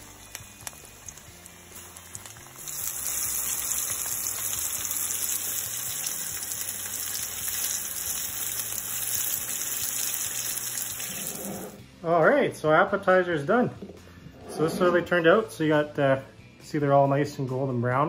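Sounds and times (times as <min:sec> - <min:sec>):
food deep-frying in oil: 0:00.0 - 0:11.8.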